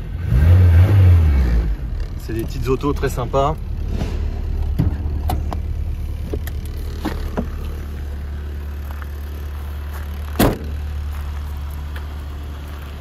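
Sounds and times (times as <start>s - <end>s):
car engine idling: 1.8s - 13.0s
loud thump: 3.8s - 5.6s, 10.4s - 10.7s.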